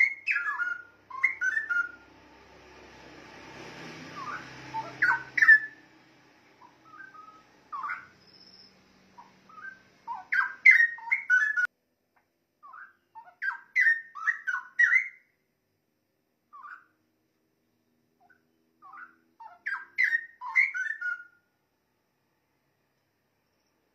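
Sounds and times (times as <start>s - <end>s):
bulbul singing: 0.0s - 2.2s, 4.0s - 11.7s, 12.6s - 15.4s, 18.2s - 21.4s.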